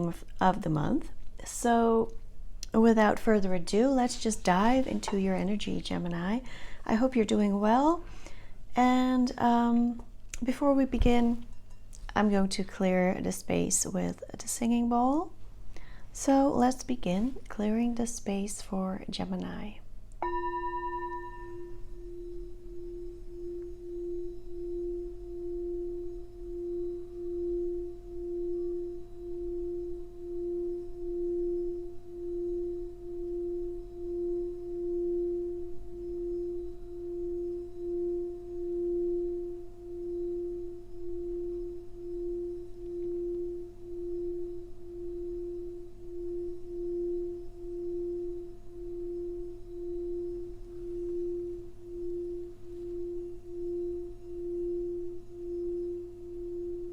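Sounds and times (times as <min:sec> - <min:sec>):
singing bowl steady tone: 0:00.0 - 0:14.0, 0:19.5 - 0:56.9
singing bowl struck: 0:20.2 - 0:56.9.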